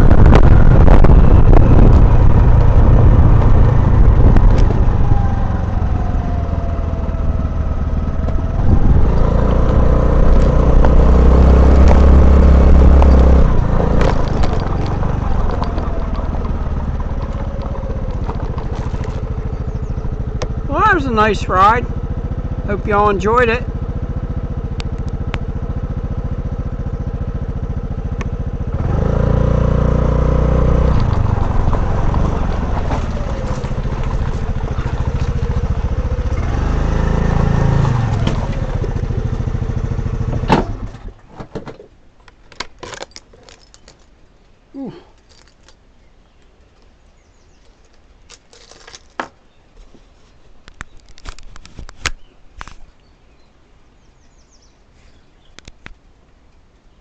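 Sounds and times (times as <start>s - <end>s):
small motorcycle engine running: 0.0s - 41.2s.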